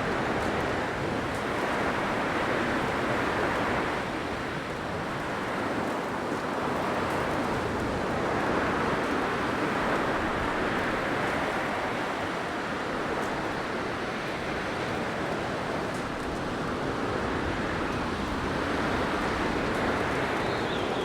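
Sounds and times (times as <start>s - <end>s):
blizzard wind rushing: 15.8s - 21.0s.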